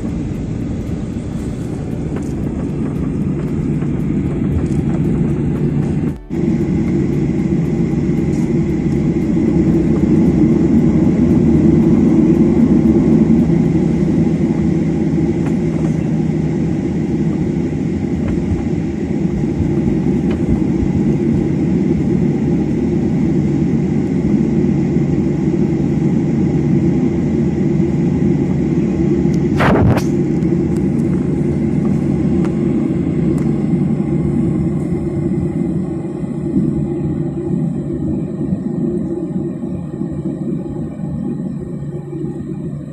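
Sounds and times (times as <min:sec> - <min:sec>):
moving vehicle rumble: 0:00.0 - 0:42.9.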